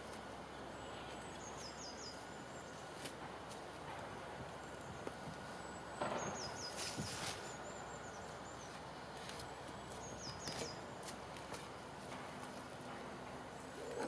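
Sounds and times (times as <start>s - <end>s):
steady outdoor hiss: 0.0s - 14.0s
bird singing falling notes: 5.7s - 8.2s.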